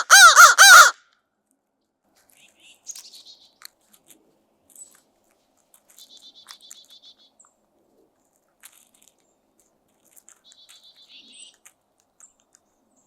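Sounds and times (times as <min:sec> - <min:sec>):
small birds chattering: 0:02.3 - 0:04.1, 0:05.8 - 0:07.6, 0:10.2 - 0:13.0.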